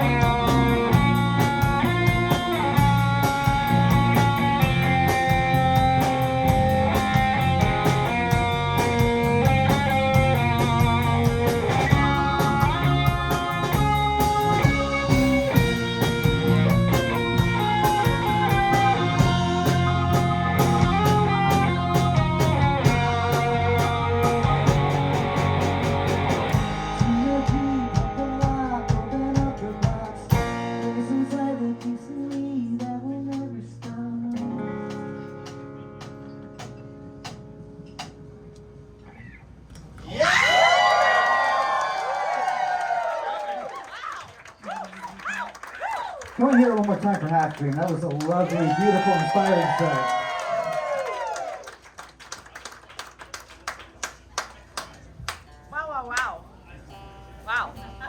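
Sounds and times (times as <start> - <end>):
live rock band playing: 0.0 - 38.8.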